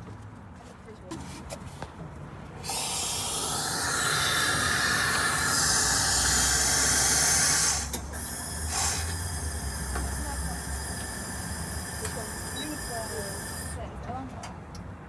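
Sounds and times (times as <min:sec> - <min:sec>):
steam wand hissing: 0:02.6 - 0:13.8.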